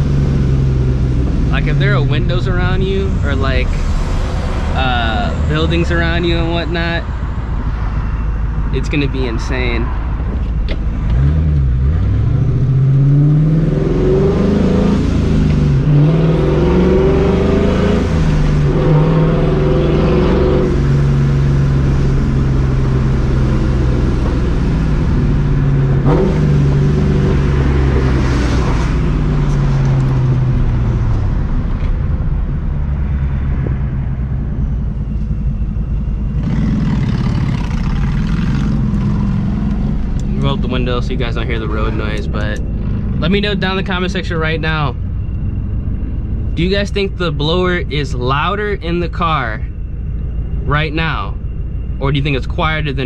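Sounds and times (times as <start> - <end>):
car engine accelerating through gears: 10.2 - 48.0
exhaust pop: 21.8 - 32.4.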